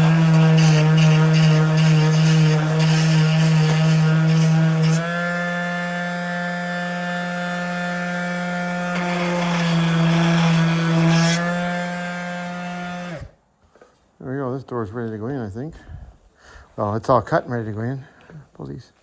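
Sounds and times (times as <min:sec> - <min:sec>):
electric sander humming: 0:00.0 - 0:13.3.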